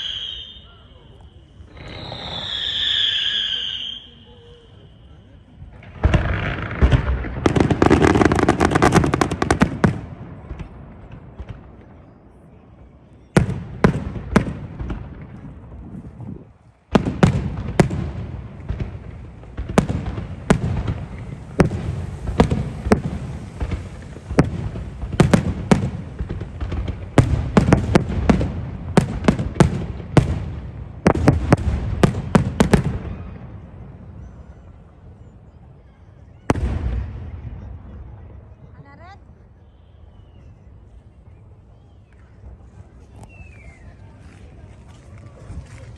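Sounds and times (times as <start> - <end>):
fireworks sharp bangs: 0.0 - 12.3, 13.3 - 16.2, 16.9 - 34.2
fireworks crackling: 0.0 - 35.0.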